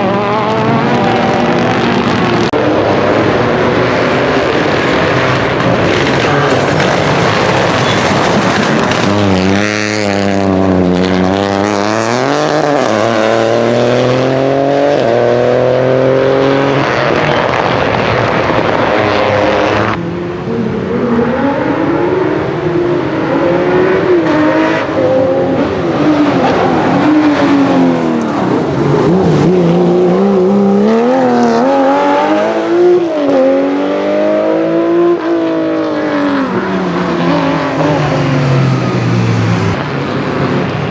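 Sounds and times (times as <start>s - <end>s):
rally car engines revving: 0.0s - 40.9s.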